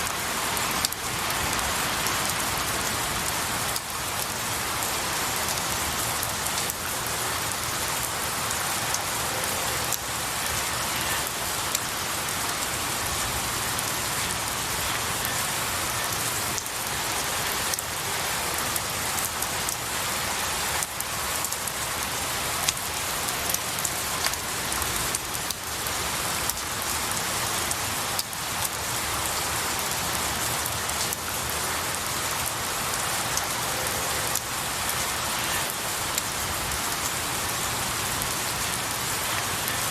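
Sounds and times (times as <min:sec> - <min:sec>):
rain falling on pine needles: 0:00.0 - 0:39.9.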